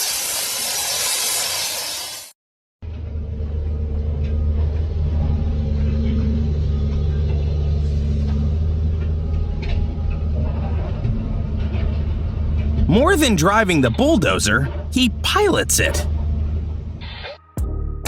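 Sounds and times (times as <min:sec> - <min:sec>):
bulldozer diesel engine droning: 0:02.8 - 0:17.0.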